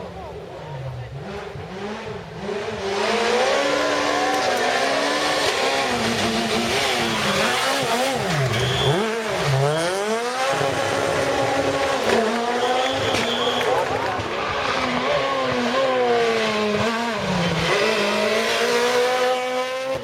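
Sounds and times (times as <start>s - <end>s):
rally car engine revving: 0.0s - 20.0s
high squeals: 6.7s - 9.3s.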